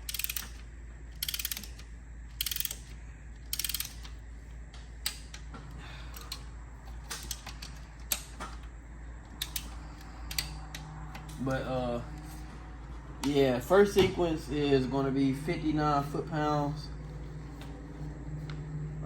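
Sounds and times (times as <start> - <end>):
hand ratchet clicking: 0.0 - 4.2, 5.0 - 5.5, 6.1 - 8.3, 9.2 - 11.4.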